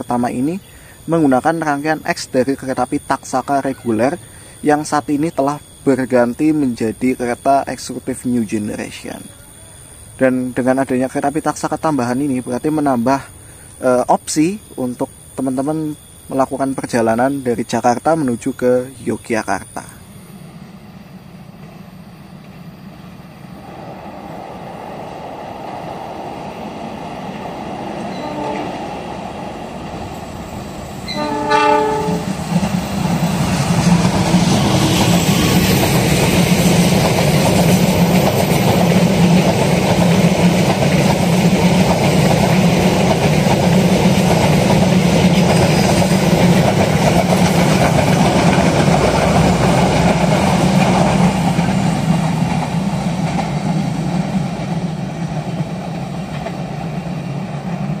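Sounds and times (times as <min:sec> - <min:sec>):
train rumbling past: 0:00.0 - 0:58.0
train horn: 0:28.0 - 0:29.0, 0:31.0 - 0:32.4.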